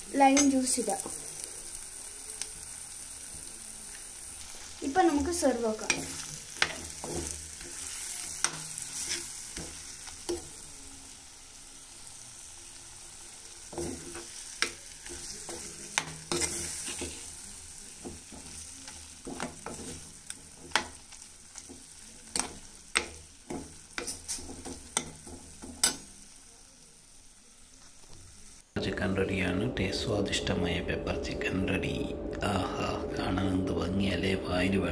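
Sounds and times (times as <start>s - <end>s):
chicken sizzling in a clay pot: 0.0s - 34.9s
steel spoon scraping a pot: 5.9s - 9.4s.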